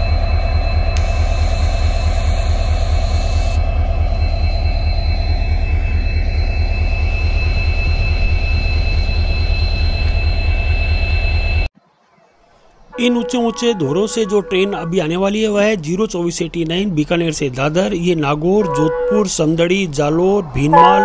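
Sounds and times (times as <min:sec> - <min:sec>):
steady high whine: 0:00.0 - 0:11.7, 0:12.5 - 0:21.0
locomotive rumble: 0:12.5 - 0:21.0.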